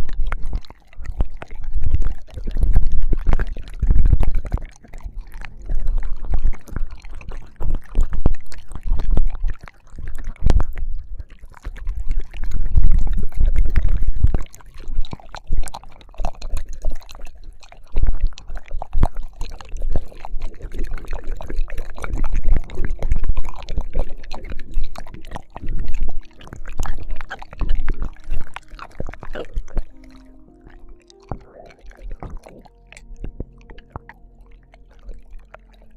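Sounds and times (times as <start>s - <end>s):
wet licking and smacking: 0.0s - 35.9s.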